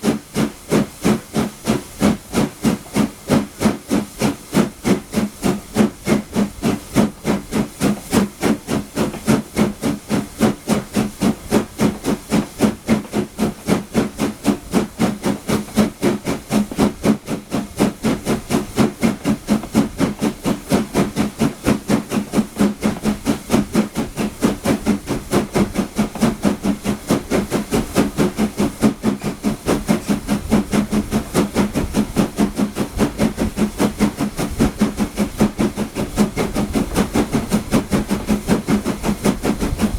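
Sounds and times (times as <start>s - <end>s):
steam locomotive exhaust beat: 0.0s - 39.9s.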